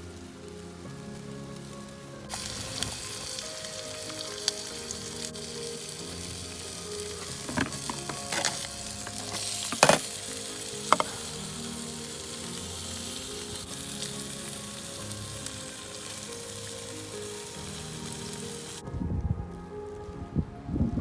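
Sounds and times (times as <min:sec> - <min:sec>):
soft held music notes: 0:00.0 - 0:21.0
food sizzling in a pan: 0:00.1 - 0:18.8.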